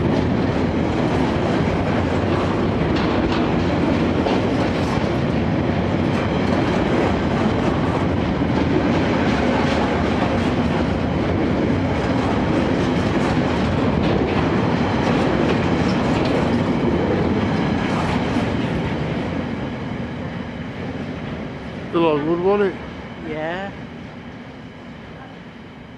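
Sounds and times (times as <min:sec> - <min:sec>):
diesel freight train passing: 0:00.0 - 0:25.9.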